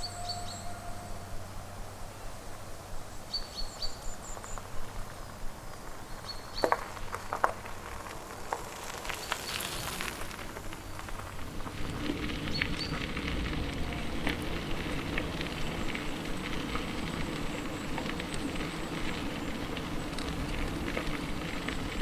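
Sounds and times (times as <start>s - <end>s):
small birds chirping: 3.1s - 5.4s, 6.0s - 7.4s, 8.4s - 11.2s.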